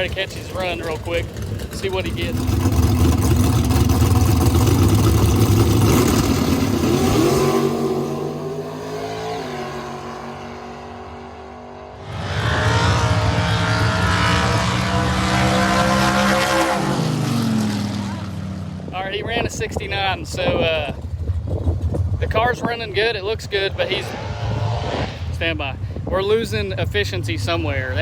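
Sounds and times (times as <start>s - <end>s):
race car engine at full throttle: 0.0s - 28.0s.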